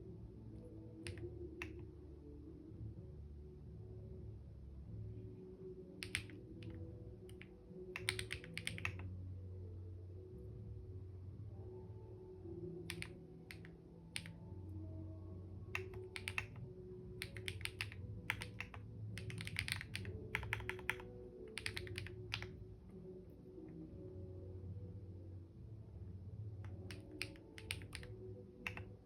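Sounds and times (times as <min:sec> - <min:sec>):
faint low hum: 0:00.0 - 0:29.0
keyboard typing: 0:01.0 - 0:01.8, 0:06.0 - 0:09.1, 0:12.8 - 0:14.4, 0:15.7 - 0:22.6, 0:26.6 - 0:29.0.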